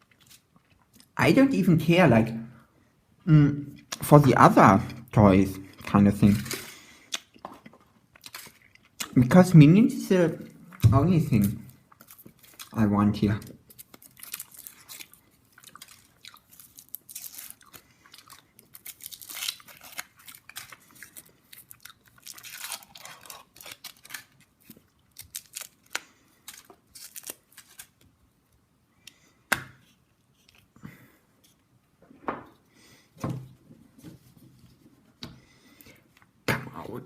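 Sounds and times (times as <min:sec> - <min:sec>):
foil wrapper crinkling and tearing: 0:08.2 - 0:08.9, 0:11.1 - 0:28.0.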